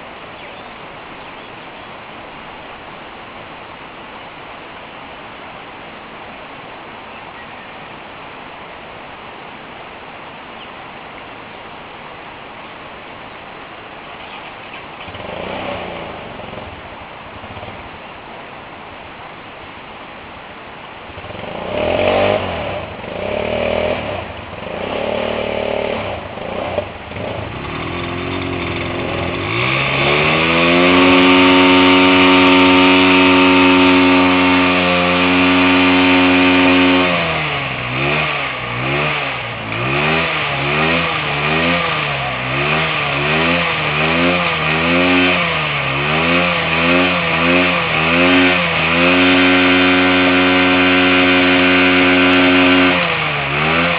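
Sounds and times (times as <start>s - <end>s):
motorcycle engine revving: 15.0s - 18.1s, 21.1s - 53.9s.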